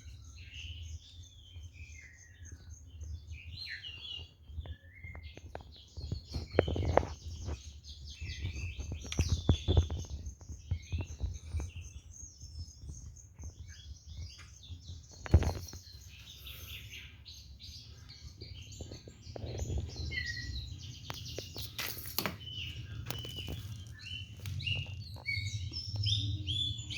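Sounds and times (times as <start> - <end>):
songbirds chirping and trilling: 0.0 - 26.9.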